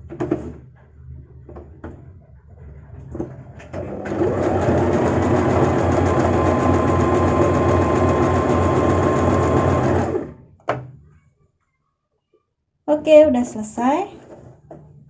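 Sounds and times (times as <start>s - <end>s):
electric sewing machine running: 3.8s - 10.5s.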